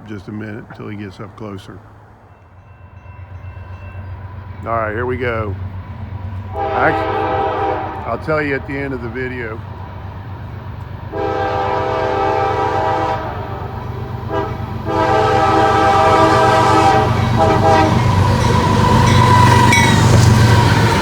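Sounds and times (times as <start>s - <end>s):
locomotive engine low rumble: 0.0s - 21.0s
wheel and rail noise: 0.0s - 21.0s
locomotive air horn blasts: 6.5s - 8.2s, 11.1s - 21.0s.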